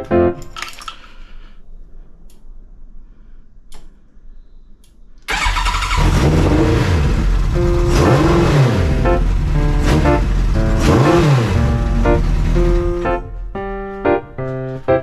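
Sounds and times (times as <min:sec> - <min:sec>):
faint clicks: 0:03.7 - 0:05.3
motorcycle engine starting and revving: 0:05.3 - 0:13.5.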